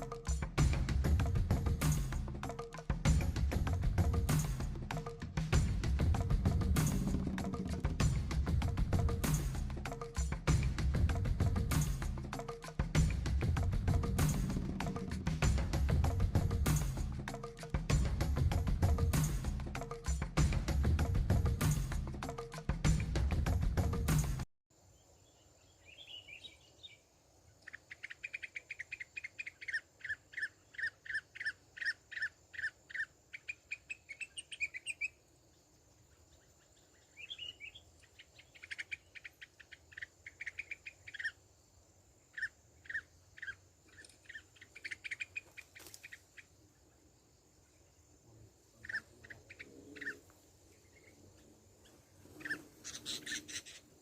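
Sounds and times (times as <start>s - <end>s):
bird chirping: 24.8s - 41.5s, 42.2s - 54.0s.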